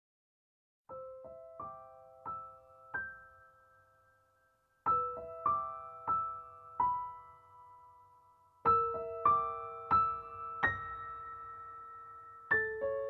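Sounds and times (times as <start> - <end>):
slow solo piano notes: 4.8 - 13.0.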